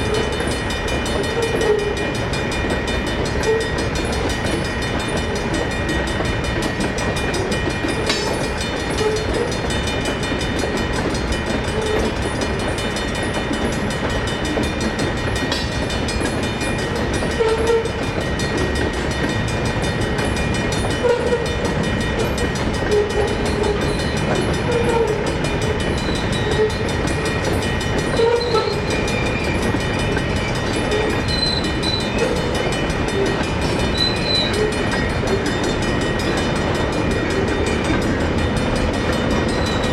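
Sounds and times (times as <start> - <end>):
crossing bell ringing: 0.0 - 39.9
wheels squealing: 28.1 - 29.6, 30.9 - 32.5, 33.9 - 34.8.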